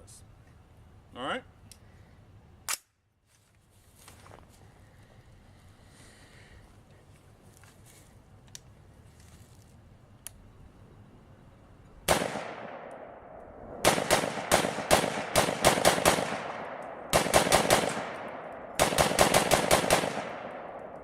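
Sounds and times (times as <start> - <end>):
rapid semi-automatic gunfire: 12.1 - 21.0
rifle shots: 12.1 - 21.0.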